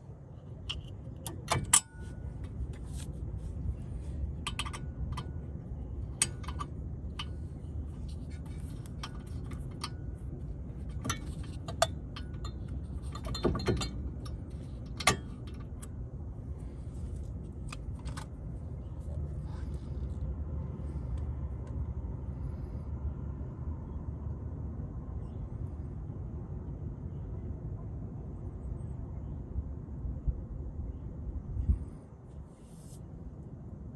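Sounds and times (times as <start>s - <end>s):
low hum: 0.0s - 33.9s
metallic clinks and knocks: 10.8s - 15.8s.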